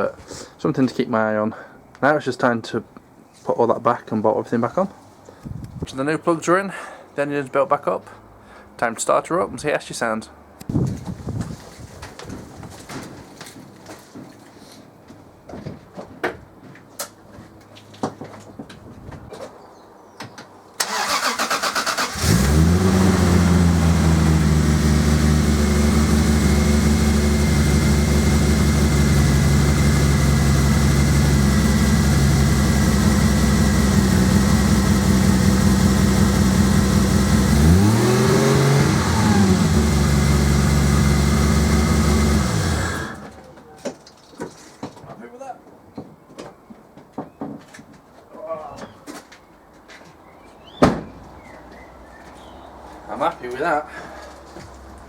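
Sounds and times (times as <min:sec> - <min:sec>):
car engine starting and idling: 0:20.8 - 0:43.4.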